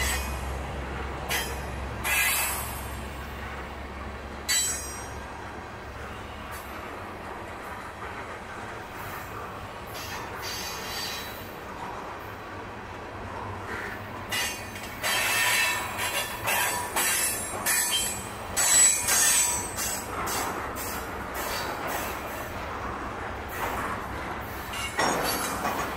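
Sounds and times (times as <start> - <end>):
steel wheels squealing: 0.0 - 0.4, 1.3 - 3.0, 9.9 - 11.5, 13.8 - 22.4, 24.5 - 25.9
train cars rolling past: 0.0 - 25.9.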